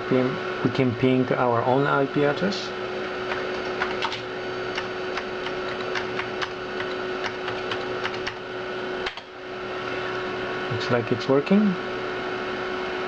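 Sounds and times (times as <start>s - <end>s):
computer hard drive hum: 0.0s - 13.0s
keyboard keys clicking: 3.3s - 8.4s.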